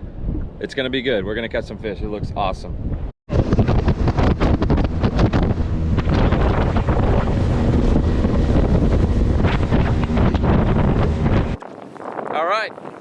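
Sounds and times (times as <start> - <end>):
wind buffeting microphone: 0.0 - 13.0
water rushing past boat: 3.3 - 13.0.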